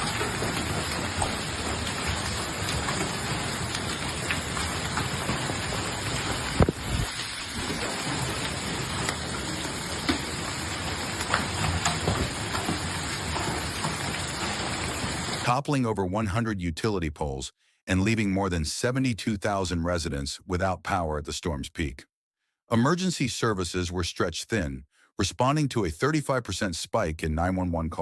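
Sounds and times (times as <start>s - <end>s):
heavy rain pouring: 0.0s - 15.5s.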